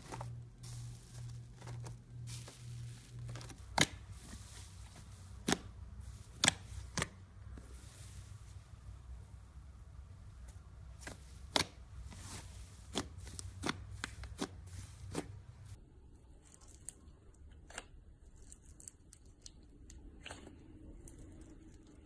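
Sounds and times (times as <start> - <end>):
soft slime squishing: 0.0 - 22.0.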